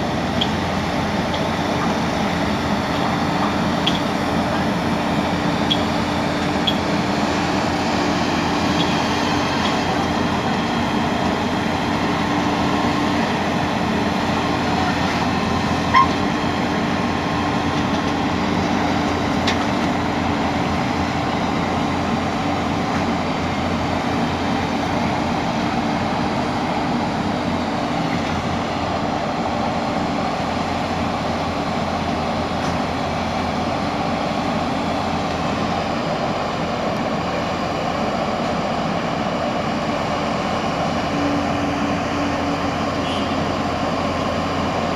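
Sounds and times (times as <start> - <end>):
excavator diesel engine running: 0.0 - 44.9
sharp squeak: 15.9 - 16.2.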